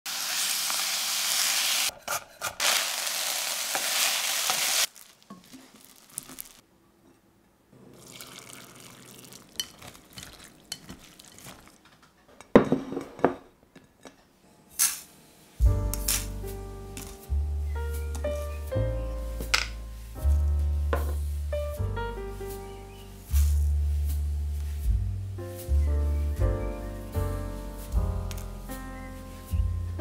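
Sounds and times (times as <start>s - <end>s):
meat sizzling in a frying pan: 0.1s - 1.9s, 2.6s - 6.6s
liquid pouring into a glass bowl: 7.9s - 11.6s.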